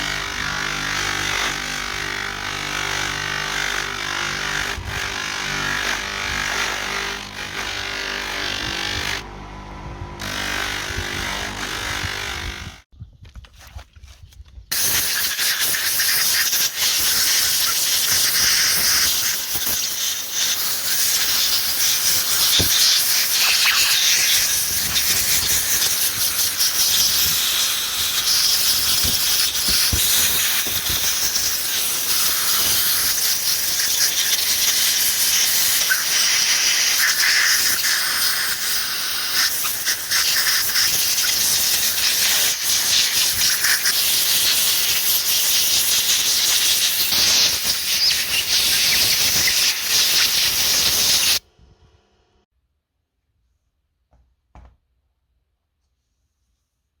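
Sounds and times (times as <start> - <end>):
loud scratchy hiss: 14.7 - 51.4.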